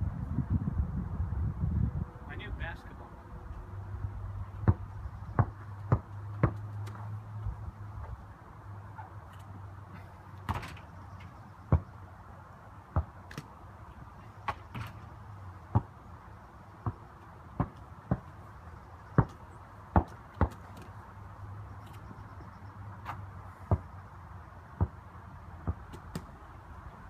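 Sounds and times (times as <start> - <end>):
basketball bouncing on hard court: 4.6 - 7.0, 11.7 - 11.9, 12.9 - 13.5, 15.7 - 16.0, 16.8 - 17.0, 17.6 - 18.3, 19.1 - 20.8, 23.7 - 23.9.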